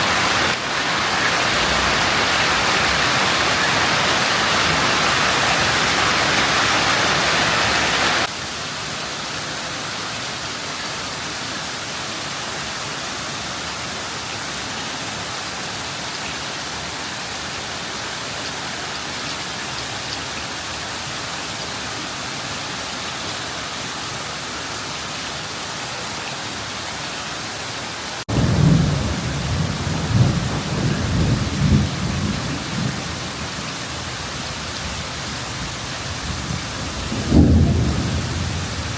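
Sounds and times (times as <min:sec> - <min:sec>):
heavy rain pouring: 0:00.0 - 0:38.9
thunder rumbling: 0:28.3 - 0:33.2, 0:36.2 - 0:38.9.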